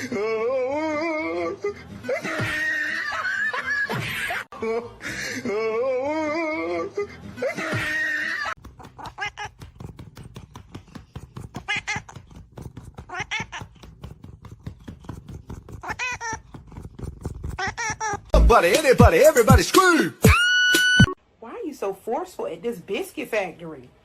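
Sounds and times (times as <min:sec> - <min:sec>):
cat yowling and meowing: 0:13.0 - 0:13.9, 0:15.8 - 0:16.6.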